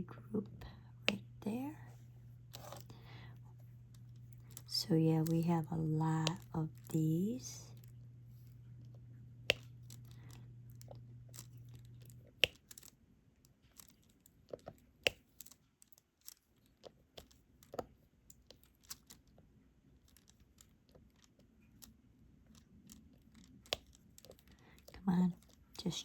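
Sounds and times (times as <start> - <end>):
low hum: 0.0 - 12.9
stylus tapping small clicks: 0.5 - 1.7, 2.5 - 12.9, 20.0 - 26.0.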